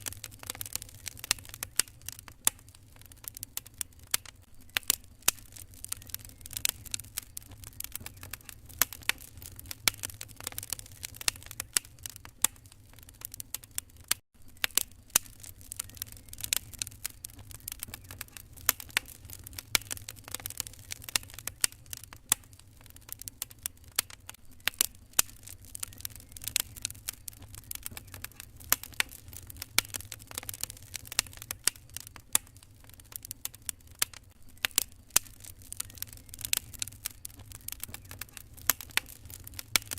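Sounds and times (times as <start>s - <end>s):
fire popping and snapping: 0.0s - 39.9s
low rumble of fire: 0.0s - 39.9s
wood fire crackling: 0.0s - 39.9s.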